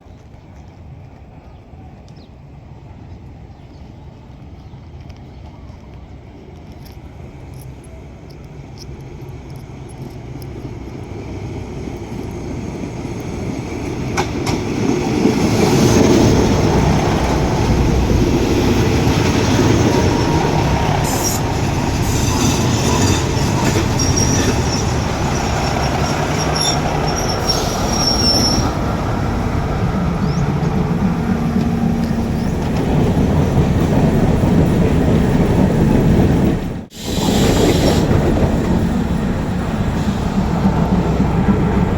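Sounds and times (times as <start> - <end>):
train wheels rumbling on rails: 0.0 - 41.9
high wheel squeals: 18.7 - 29.0.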